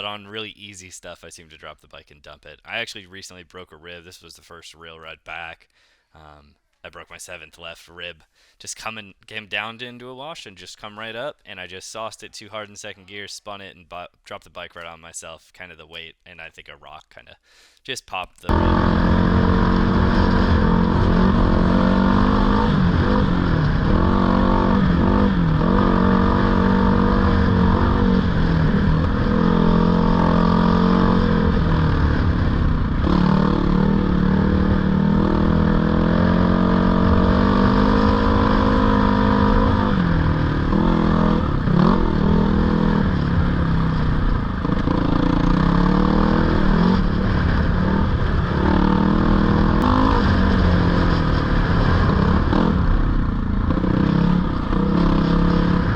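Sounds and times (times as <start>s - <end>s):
dirt bike engine revving: 18.5s - 55.9s.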